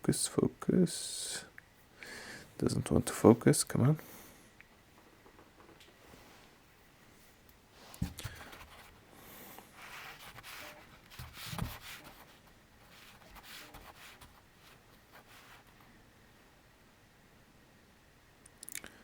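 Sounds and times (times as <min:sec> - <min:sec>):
faint rubbing and scraping: 0:07.2 - 0:16.0.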